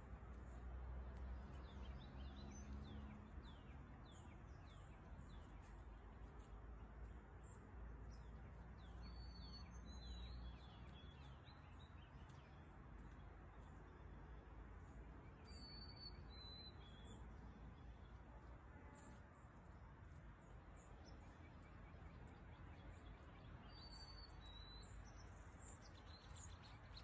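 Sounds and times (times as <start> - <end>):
faint bird chirping: 14.8 - 18.2, 20.4 - 27.0.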